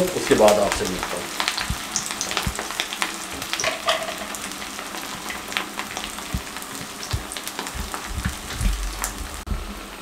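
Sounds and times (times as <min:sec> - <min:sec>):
meat sizzling in hot oil: 0:00.0 - 0:10.0.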